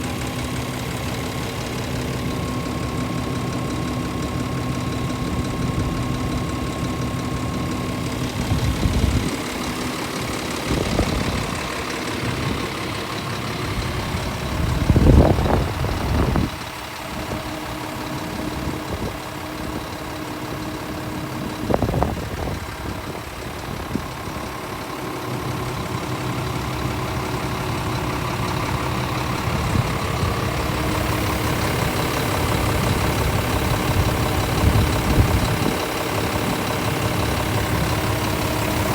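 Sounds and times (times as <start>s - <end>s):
diesel truck idling: 0.0s - 38.9s.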